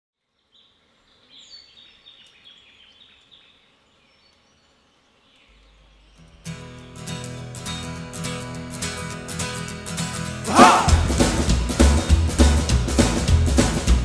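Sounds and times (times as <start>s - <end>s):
band music with guitar: 6.4s - 14.0s.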